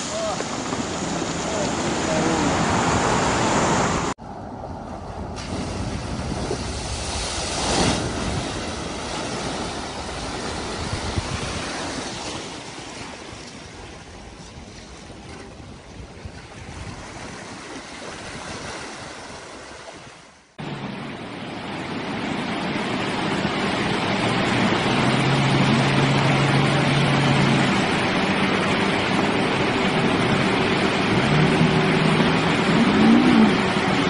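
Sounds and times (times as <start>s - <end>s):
heavy vehicle engine revving: 23.4s - 34.0s.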